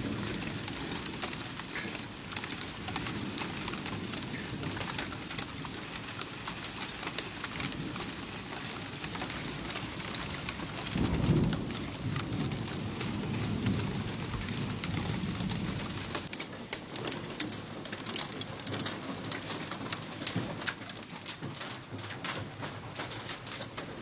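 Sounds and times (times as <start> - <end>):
rumble of thunder: 0.0 - 16.3
steady rain: 0.0 - 24.0.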